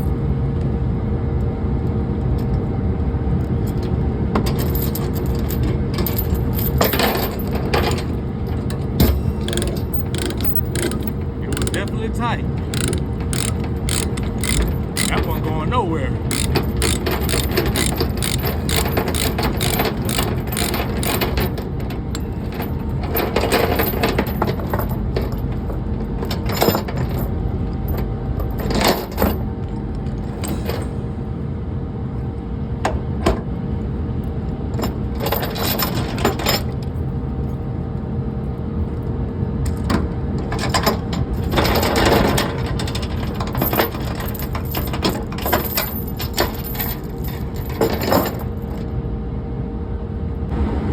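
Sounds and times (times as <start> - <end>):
sharp clicks and metallic knocks: 8.7 - 22.6.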